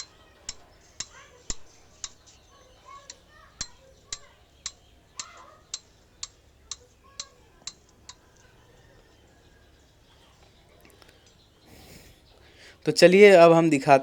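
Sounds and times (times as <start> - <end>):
sharp regular clicks: 0.0 - 9.1.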